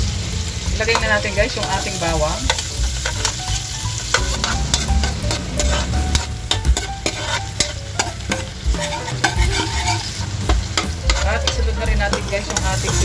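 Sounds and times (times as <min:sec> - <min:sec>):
garlic sizzling in butter: 0:00.0 - 0:13.0
spoon scraping a pan: 0:00.9 - 0:13.0.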